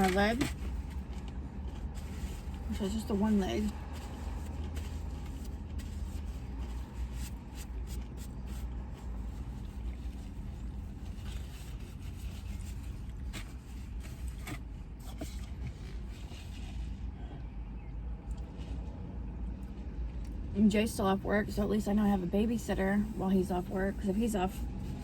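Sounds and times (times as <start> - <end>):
faint clicks and rustles: 0.0 - 17.5.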